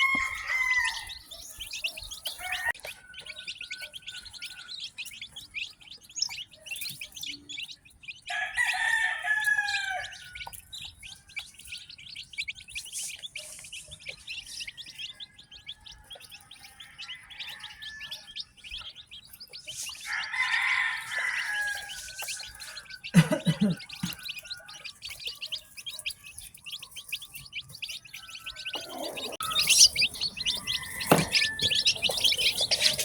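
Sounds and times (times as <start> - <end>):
rooster crowing: 0.0 - 4.8, 8.3 - 10.5, 15.0 - 18.4, 20.0 - 25.0, 28.2 - 33.0
chicks peeping: 0.0 - 33.0.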